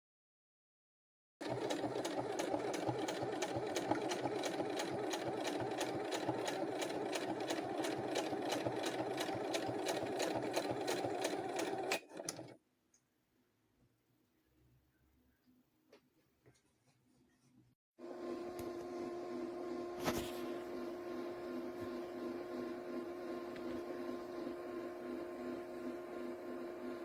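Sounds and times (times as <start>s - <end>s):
sewing machine ticking: 1.4s - 12.6s.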